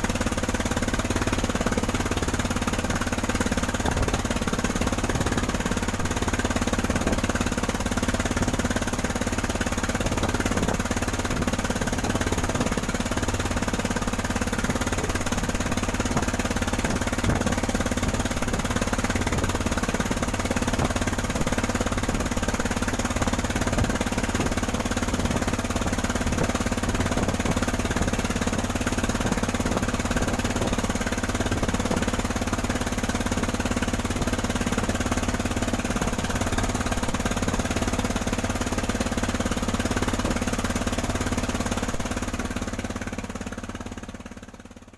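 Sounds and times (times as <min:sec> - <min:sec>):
boat engine drone: 0:00.0 - 0:44.9.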